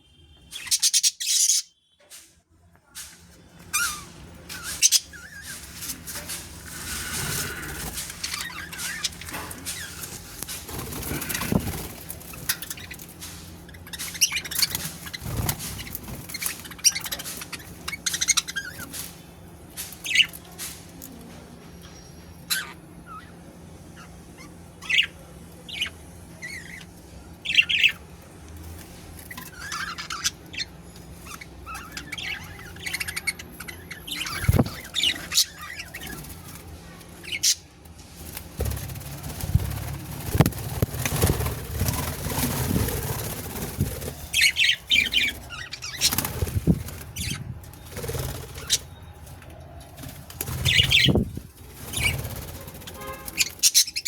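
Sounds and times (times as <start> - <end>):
budgerigars chirping: 0.6 - 1.7, 3.7 - 5.6, 13.9 - 18.9, 25.7 - 28.0, 29.3 - 36.2, 44.2 - 47.4, 50.5 - 51.3, 53.0 - 54.0
wings flapping: 4.5 - 19.2, 38.2 - 48.9, 50.0 - 53.8.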